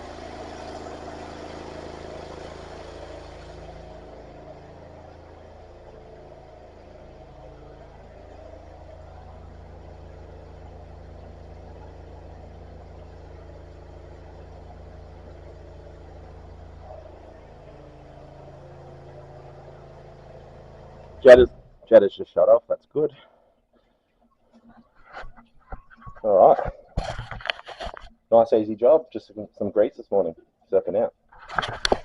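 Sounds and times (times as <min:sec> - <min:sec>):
drain jetter engine running: 0:00.0 - 0:22.0.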